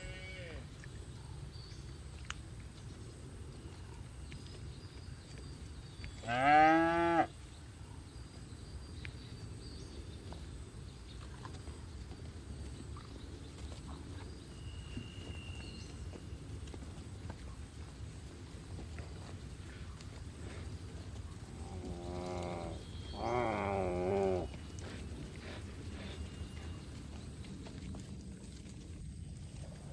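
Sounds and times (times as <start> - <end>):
cow mooing: 6.2 - 7.3, 21.6 - 24.5.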